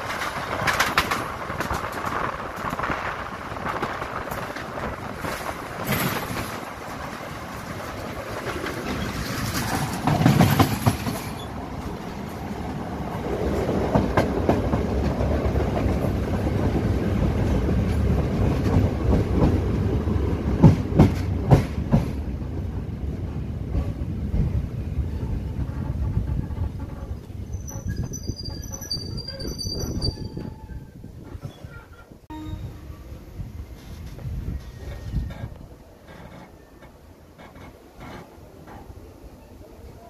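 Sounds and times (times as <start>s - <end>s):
wheels clacking over rail joints: 0.0s - 22.3s, 33.8s - 39.2s
train carriages rumbling: 0.0s - 40.0s.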